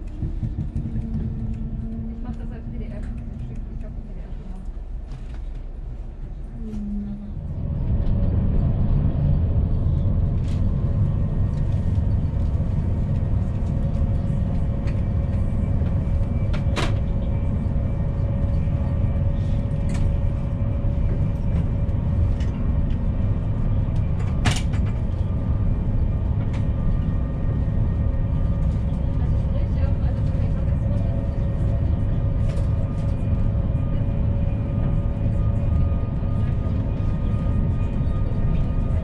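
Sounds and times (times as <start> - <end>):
train ride low rumble: 0.0 - 39.0.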